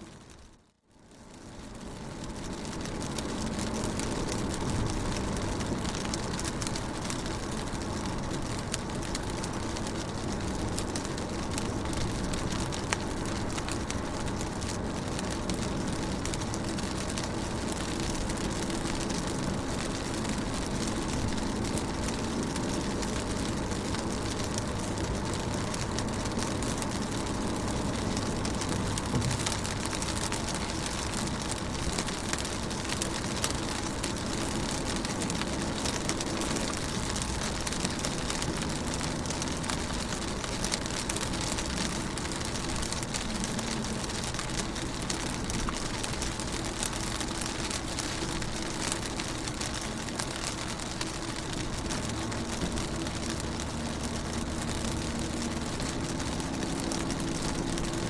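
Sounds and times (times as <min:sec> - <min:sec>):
rain on car window: 0:00.0 - 0:58.0
low rumble: 0:02.4 - 0:36.2.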